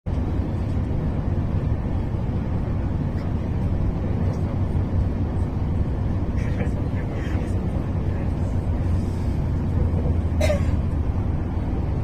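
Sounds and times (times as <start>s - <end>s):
train rumbling inside carriage: 0.1s - 12.0s.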